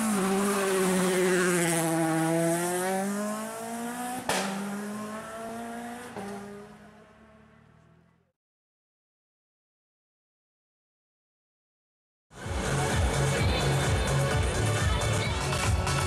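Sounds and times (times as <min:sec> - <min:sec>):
racing car engine revving: 0:00.0 - 0:08.2.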